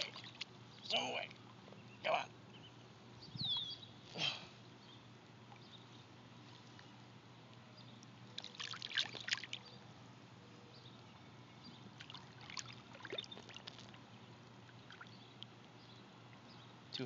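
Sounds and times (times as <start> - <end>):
light water splashing: 0.0 - 0.6, 8.0 - 9.8, 11.9 - 16.5.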